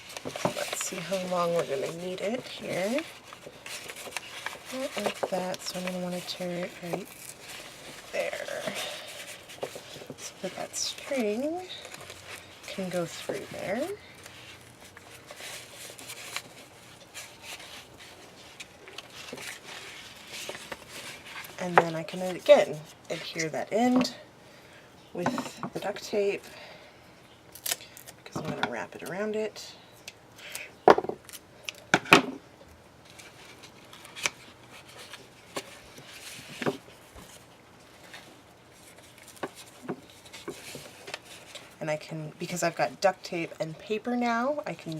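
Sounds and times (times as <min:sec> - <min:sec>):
paper rustling: 0:00.0 - 0:24.1, 0:33.0 - 0:41.8.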